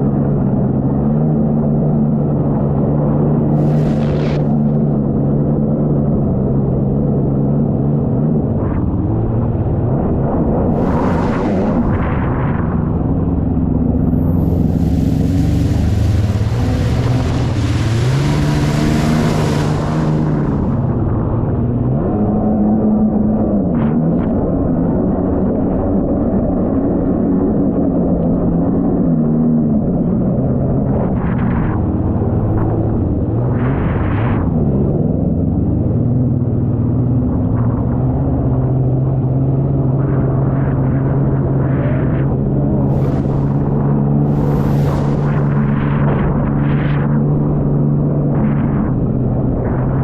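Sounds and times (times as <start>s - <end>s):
jet ski engine running: 0.0s - 23.3s, 30.6s - 50.0s
wind noise: 0.0s - 50.0s
wind and water spray rushing: 3.4s - 4.9s, 10.6s - 13.0s, 14.0s - 21.4s, 42.6s - 48.0s.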